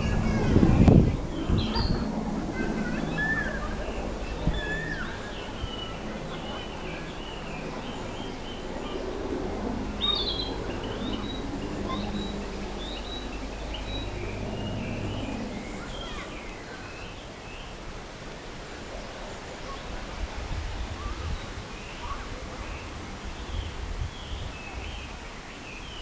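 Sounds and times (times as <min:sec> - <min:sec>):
flycatcher singing: 0:00.9 - 0:17.3.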